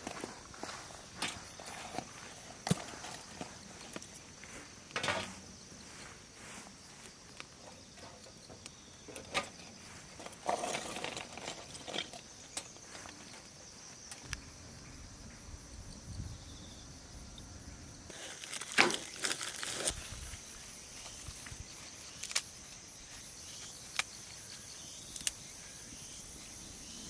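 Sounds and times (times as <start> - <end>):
insect chirring: 0.0 - 27.0
handling clicks and knocks: 7.4 - 13.5.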